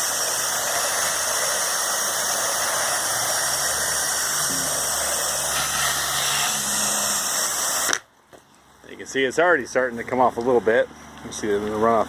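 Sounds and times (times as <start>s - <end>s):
pressure washer spray hiss: 0.0s - 8.0s.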